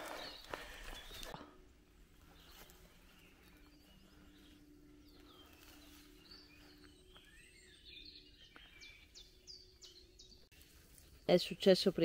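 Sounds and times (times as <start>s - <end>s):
faint bird chirps: 0.0s - 11.5s.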